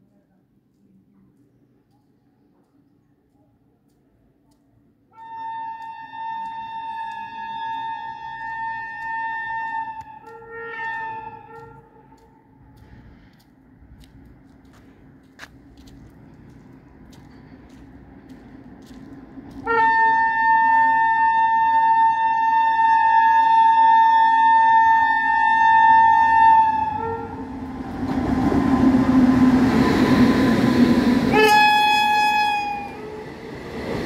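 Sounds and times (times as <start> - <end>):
train horn blast: 5.1 - 12.4, 19.6 - 27.6, 31.3 - 33.3
train rushing past: 24.3 - 34.0.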